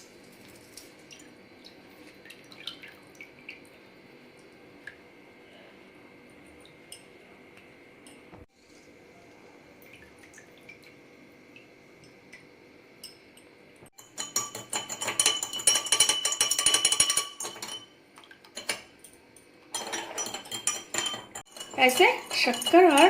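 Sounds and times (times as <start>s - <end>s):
spoon clinking against glass: 13.0s - 17.9s, 18.6s - 23.0s.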